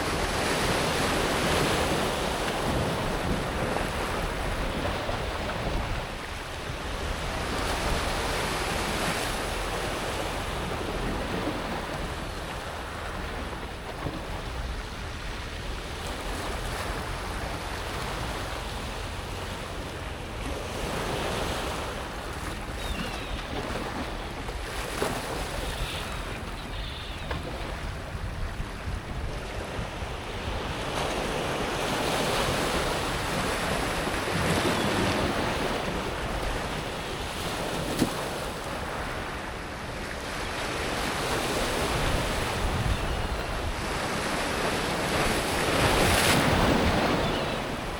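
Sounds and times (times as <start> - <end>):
wind rumble on microphone: 0.0 - 47.9.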